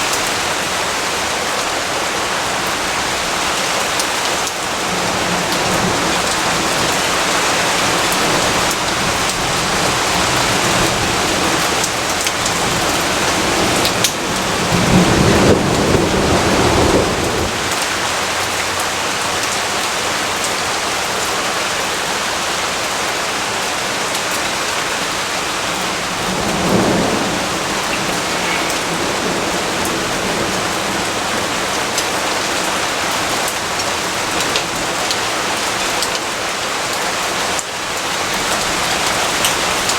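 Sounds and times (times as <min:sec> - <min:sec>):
heavy rain hissing on surfaces: 0:00.0 - 0:39.9
low thunder rumble: 0:04.8 - 0:18.1, 0:25.5 - 0:32.4.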